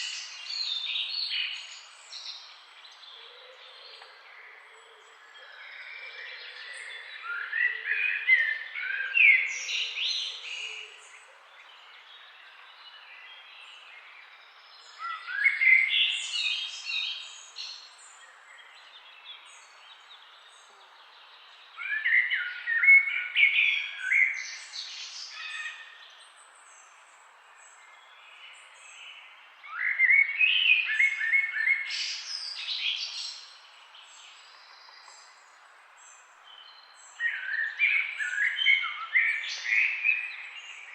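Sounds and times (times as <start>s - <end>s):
faint background hiss: 8.2s - 40.9s.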